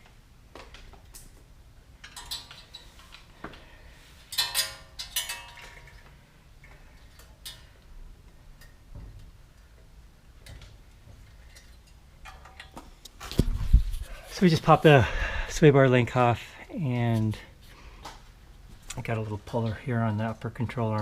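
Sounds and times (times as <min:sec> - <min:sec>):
metal tools clicking and clinking: 0:02.0 - 0:03.3, 0:04.3 - 0:06.0, 0:11.2 - 0:12.8.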